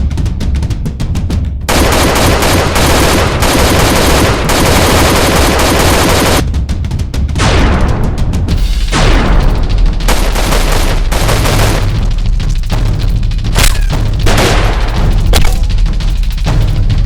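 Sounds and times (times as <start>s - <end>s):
automatic gunfire: 1.7s - 6.4s, 10.1s - 12.0s.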